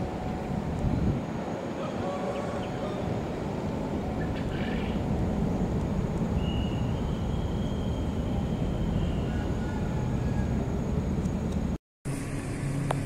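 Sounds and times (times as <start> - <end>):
faint high whine: 0.0 - 11.0
distant traffic rumble: 0.0 - 11.8
electric train approaching: 0.0 - 13.0.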